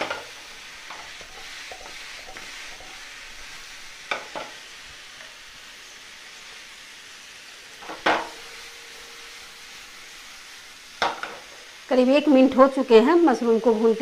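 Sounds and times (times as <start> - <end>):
mushrooms sizzling in a pan: 0.0 - 14.0
sharp clank against pan: 7.8 - 8.4, 11.0 - 11.4.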